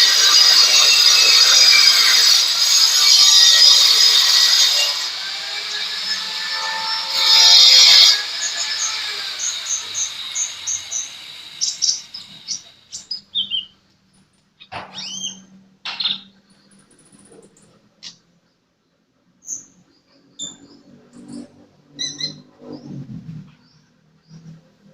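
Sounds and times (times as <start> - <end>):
small bird chirping and whistling: 9.7 - 13.8, 14.9 - 16.3.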